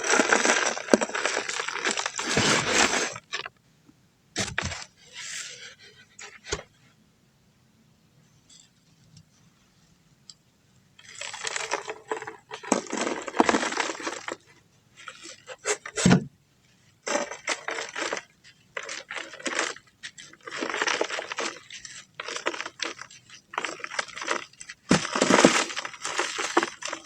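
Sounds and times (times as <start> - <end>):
dry dirt crumbling: 0.0 - 3.5, 11.1 - 14.6, 17.0 - 27.0.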